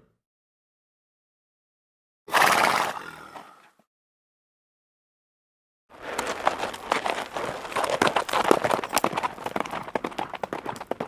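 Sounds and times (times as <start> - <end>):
hooves clattering on hard ground: 5.9 - 11.0.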